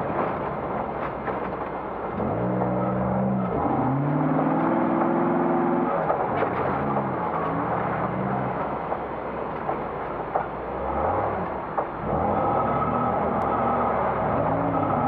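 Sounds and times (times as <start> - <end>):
vehicle knocks and clatters: 0.0 - 2.8, 3.4 - 12.3
engine pulling under load: 0.0 - 15.0.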